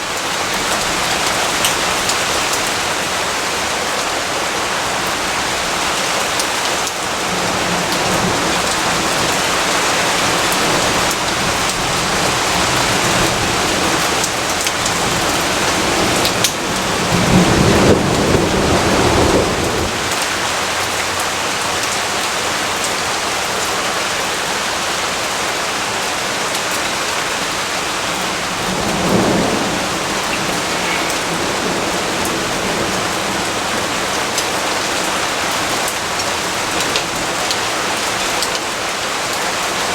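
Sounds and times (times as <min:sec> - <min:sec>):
heavy rain falling: 0:00.0 - 0:39.9
low thunder rumble: 0:07.2 - 0:20.2, 0:27.9 - 0:34.4.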